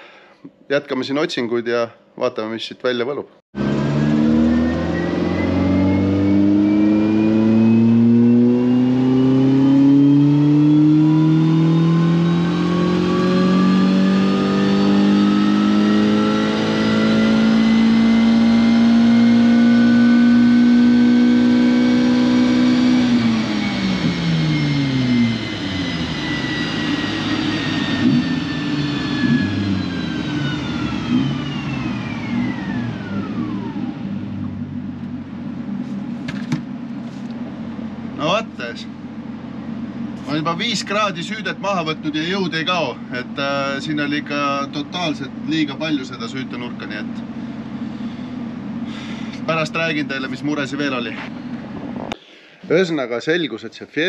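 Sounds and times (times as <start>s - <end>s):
rally car engine revving: 3.6s - 34.8s
low rumble of dyno rollers: 3.6s - 53.1s.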